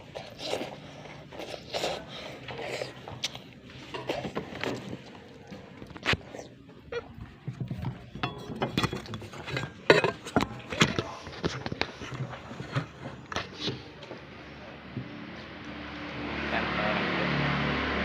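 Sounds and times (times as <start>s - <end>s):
cutlery clinking on plates: 8.2s - 11.0s.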